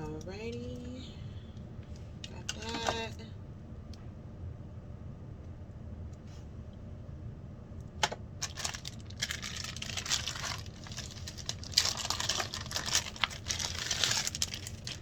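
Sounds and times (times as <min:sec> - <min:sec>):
packaging rustling and crinkling: 0:08.4 - 0:15.0.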